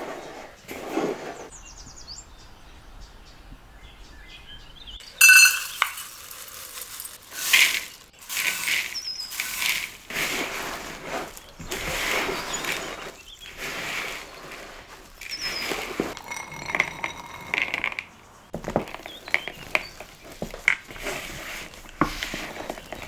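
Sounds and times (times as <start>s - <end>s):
ringing clink of glass or metal: 5.2s - 6.4s.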